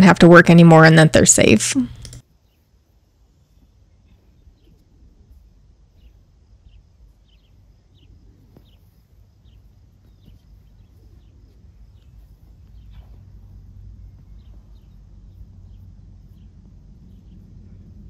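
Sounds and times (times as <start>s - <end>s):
low steady rumble: 3.0s - 18.0s
bird chirping: 5.9s - 17.9s.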